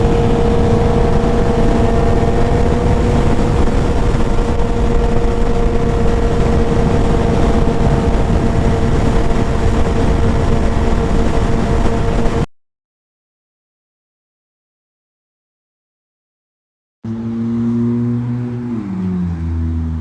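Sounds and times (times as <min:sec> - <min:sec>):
motorcycle engine at steady revs: 0:00.0 - 0:12.5, 0:17.1 - 0:20.0
wind rumble on microphone: 0:00.0 - 0:12.5.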